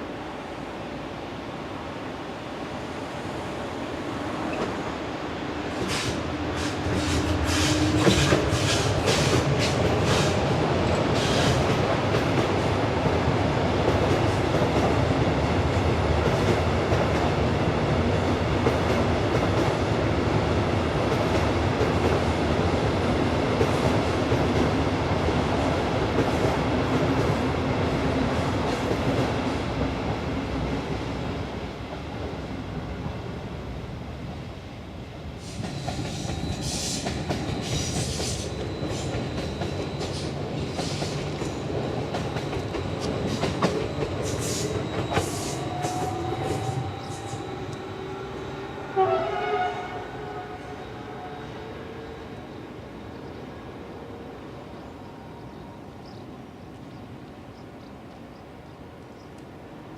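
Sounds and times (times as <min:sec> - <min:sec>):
train rumbling: 0:00.0 - 0:59.9
train wheels clacking: 0:05.8 - 0:13.2, 0:35.4 - 0:48.0.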